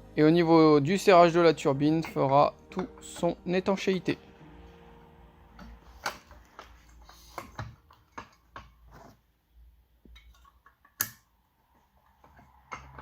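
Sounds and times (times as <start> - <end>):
pool pump parts clicking and knocking: 1.3 - 4.1, 5.6 - 9.2, 10.0 - 11.3, 12.0 - 13.0.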